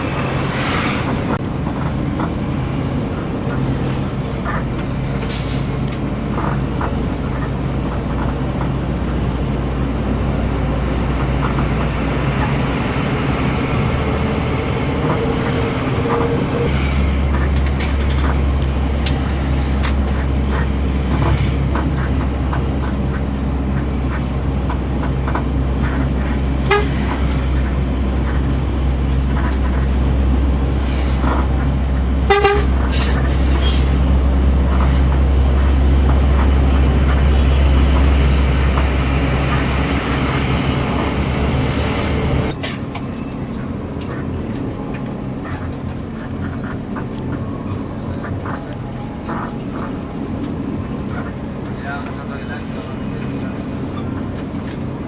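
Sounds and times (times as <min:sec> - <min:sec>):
bus engine and road drone: 0:00.0 - 0:55.0
short horn toot: 0:32.3 - 0:33.9.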